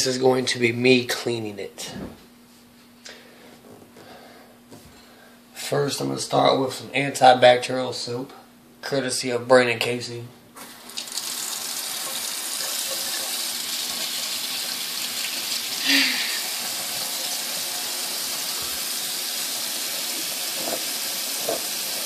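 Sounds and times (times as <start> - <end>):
tap water running into sink: 10.6 - 22.0.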